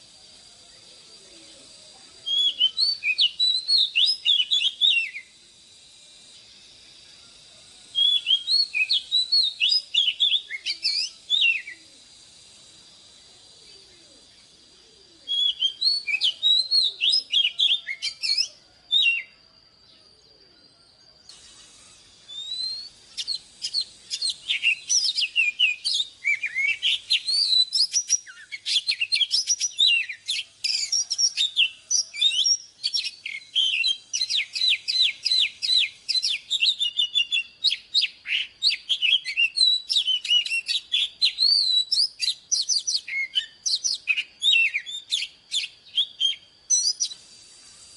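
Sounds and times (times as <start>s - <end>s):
magpie-robin singing: 15.3s - 19.3s, 22.3s - 47.2s.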